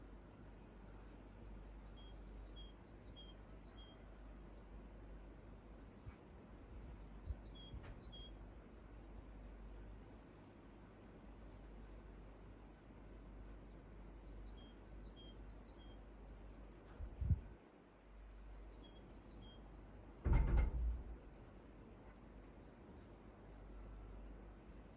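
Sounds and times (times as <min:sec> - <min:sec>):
crickets trilling: 0:00.0 - 0:24.9
small bird chirping: 0:01.4 - 0:04.3, 0:07.1 - 0:09.1, 0:14.2 - 0:16.1, 0:18.4 - 0:20.0.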